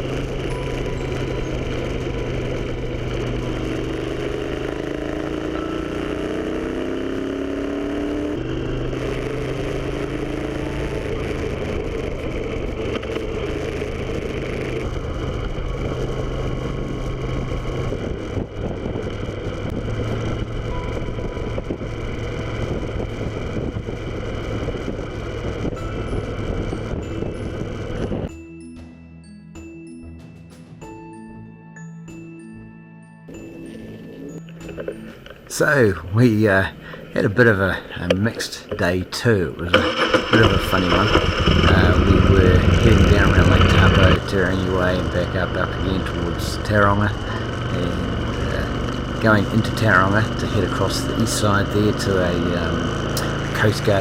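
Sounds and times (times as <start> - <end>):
motorcycle engine accelerating: 0.0 - 28.3, 33.3 - 54.0
steady rush of noise: 39.8 - 49.7.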